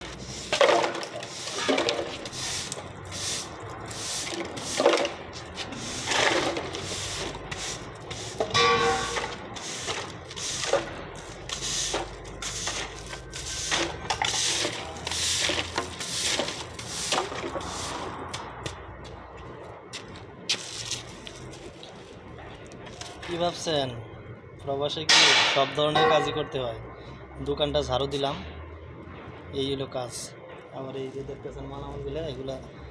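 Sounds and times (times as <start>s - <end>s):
broom sweeping a floor: 0.0s - 18.4s, 20.0s - 21.8s.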